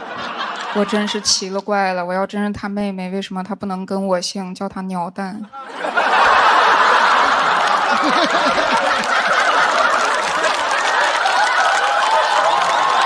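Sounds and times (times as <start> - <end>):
audience laughing loudly: 0.0 - 1.5, 5.4 - 13.0.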